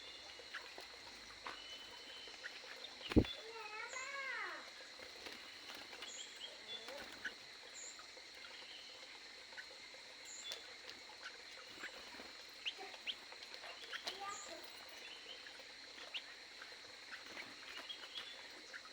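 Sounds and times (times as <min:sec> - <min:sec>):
birds chirping: 0:00.0 - 0:18.9.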